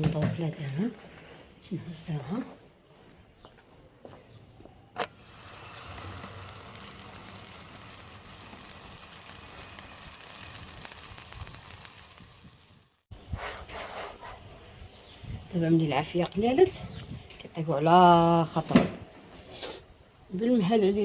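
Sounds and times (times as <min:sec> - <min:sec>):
flatbread sizzling on a hot pan: 0:05.1 - 0:13.1.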